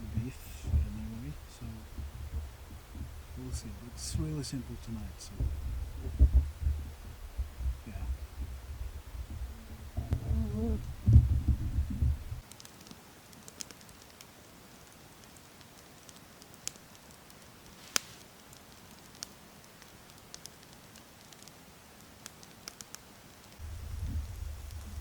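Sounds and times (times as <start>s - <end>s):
low rumble: 0.0s - 12.4s, 23.6s - 25.0s
faint sharp crackles and clicks: 0.0s - 25.0s.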